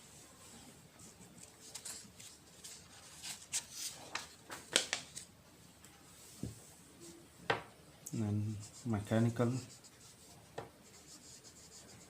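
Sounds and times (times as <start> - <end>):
scratchy pen strokes: 8.5 - 12.0.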